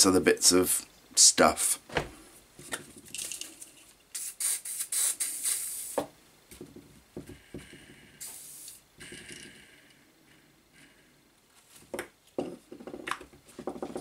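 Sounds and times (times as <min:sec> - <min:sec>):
aerosol spray hissing: 0:04.1 - 0:06.1, 0:08.2 - 0:08.8.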